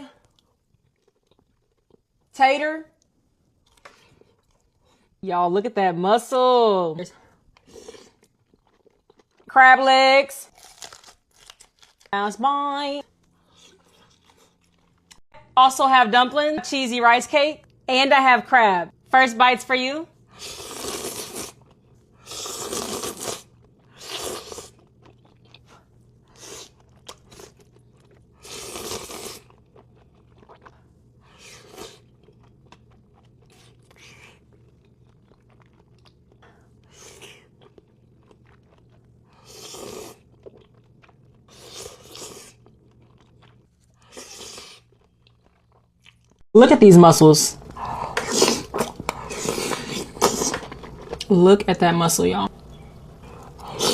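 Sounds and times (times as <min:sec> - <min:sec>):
crunching and chewing: 0:00.2 - 0:02.3, 0:03.6 - 0:05.1, 0:07.4 - 0:09.5, 0:10.5 - 0:12.2, 0:13.1 - 0:15.2, 0:20.4 - 0:46.4, 0:47.6 - 0:51.3.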